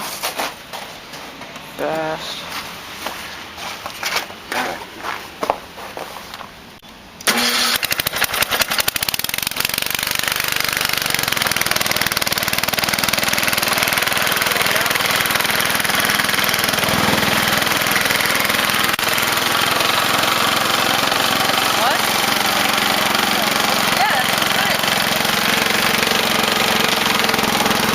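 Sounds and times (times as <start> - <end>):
lawn tractor engine starting: 7.2 - 27.9.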